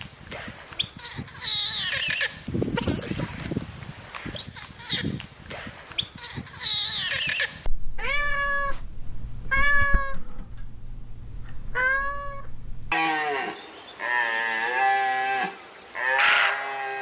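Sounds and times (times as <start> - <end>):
high squeaky gliding chirps: 6.0 - 12.9
cat meowing: 8.0 - 8.8, 9.5 - 10.3, 11.7 - 12.5.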